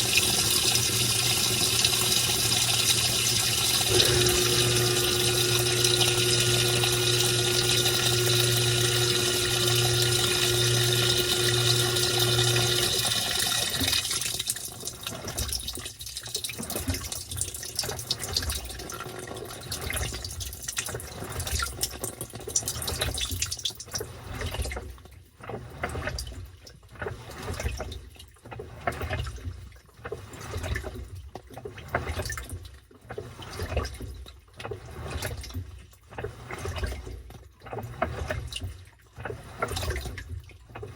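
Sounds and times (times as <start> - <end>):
running water: 0.0 - 24.5
pump hum: 0.0 - 24.8
water sloshing in washing machine: 0.0 - 40.9.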